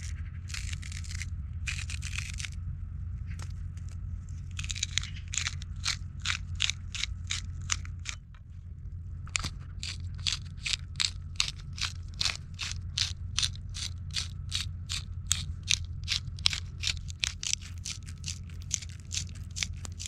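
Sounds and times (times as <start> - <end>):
steady low hum: 0.0 - 20.0
knife cutting crisp vegetables: 0.5 - 2.6, 9.8 - 20.0.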